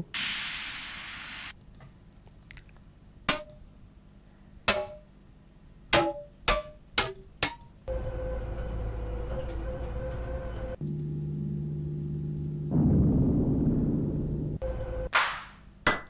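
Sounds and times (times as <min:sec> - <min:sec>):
short hiss: 0:00.0 - 0:01.5
steady held tone: 0:00.0 - 0:01.5, 0:07.9 - 0:15.1
low rumble: 0:08.0 - 0:15.1.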